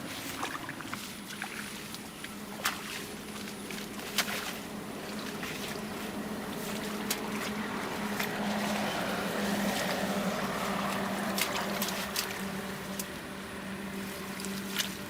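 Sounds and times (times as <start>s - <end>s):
low steady hum: 0.0s - 15.0s
rain water rushing: 0.0s - 15.0s.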